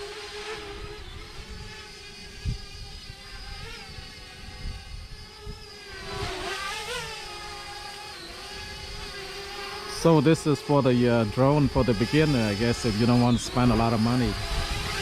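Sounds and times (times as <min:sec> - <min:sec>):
drone propellers whining: 0:00.0 - 0:15.0
wind rumbling on microphone: 0:00.6 - 0:06.4, 0:10.9 - 0:15.0.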